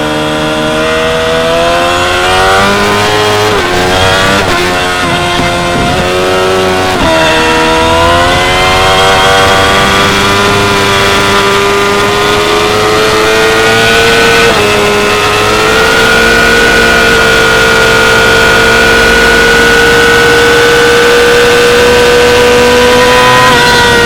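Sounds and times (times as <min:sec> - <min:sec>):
motorcycle engine revving through gears: 0:00.0 - 0:24.0.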